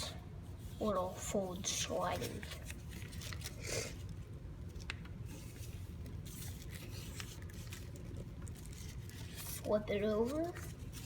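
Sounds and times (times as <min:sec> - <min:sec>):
paper scraping and rubbing: 0:05.3 - 0:11.0.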